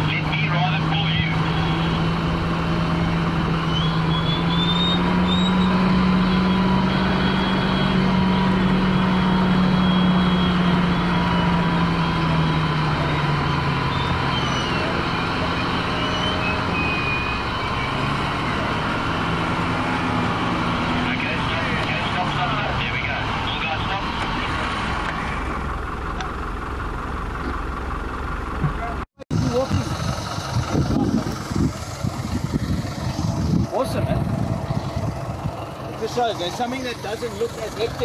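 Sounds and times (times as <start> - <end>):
car engine running: 0.0 - 38.0
wind rumble: 29.3 - 35.9.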